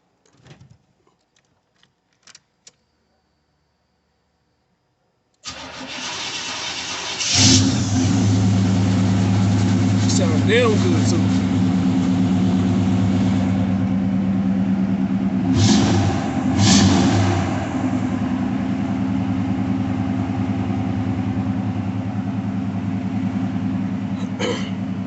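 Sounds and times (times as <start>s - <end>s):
car engine idling and revving: 5.5s - 25.0s.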